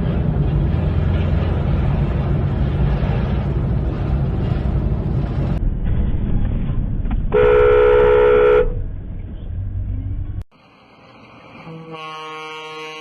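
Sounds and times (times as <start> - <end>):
road and wind noise: 0.0 - 12.1
car horn honking: 7.3 - 8.8.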